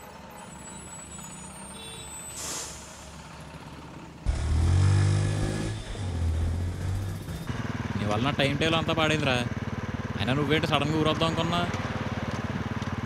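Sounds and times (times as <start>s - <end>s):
traffic din: 0.0s - 13.0s
short air hiss: 2.3s - 3.2s
motorcycle engine revving: 4.2s - 13.0s.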